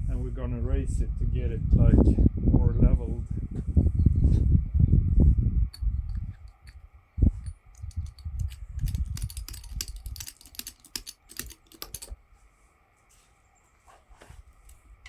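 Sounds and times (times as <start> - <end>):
low thumps and rumble: 0.0 - 10.2.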